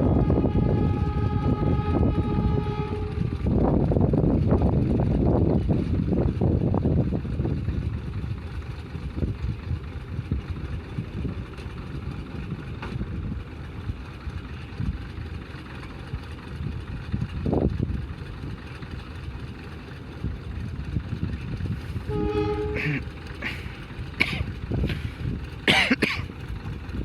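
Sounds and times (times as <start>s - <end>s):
train horn blast: 0.0s - 3.5s, 22.0s - 23.1s
train rumbling past: 0.0s - 27.0s.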